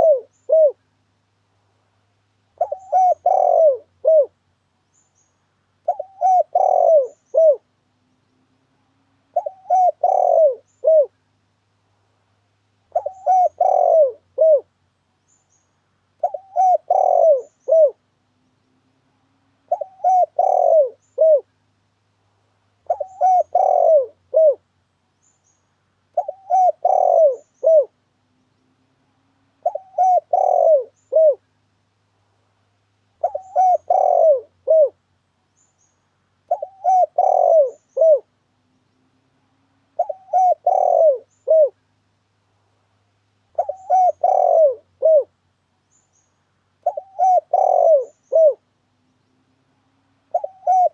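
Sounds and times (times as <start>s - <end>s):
dove cooing: 0.0s - 0.8s, 2.5s - 4.4s, 5.8s - 7.7s, 9.2s - 11.2s, 12.9s - 14.7s, 16.2s - 18.0s, 19.6s - 21.5s, 22.8s - 24.6s, 26.1s - 28.0s, 29.6s - 31.4s, 33.2s - 35.0s, 36.5s - 38.4s, 39.9s - 41.8s, 43.5s - 45.4s, 46.8s - 48.7s, 50.3s - 50.9s.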